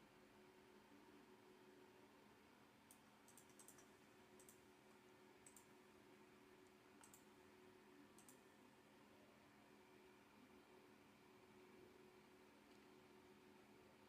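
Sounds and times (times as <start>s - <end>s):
faint steady hum: 0.0s - 14.0s
computer mouse clicks: 2.8s - 4.6s, 5.4s - 5.8s, 6.6s - 7.3s, 8.1s - 8.5s.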